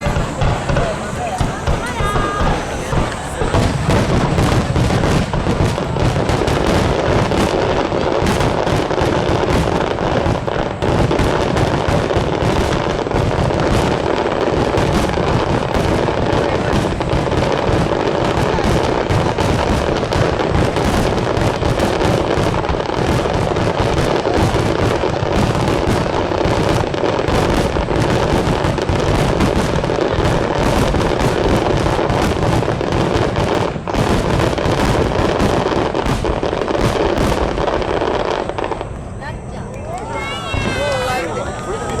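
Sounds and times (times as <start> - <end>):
fireworks bangs and crackles: 0.0 - 42.0.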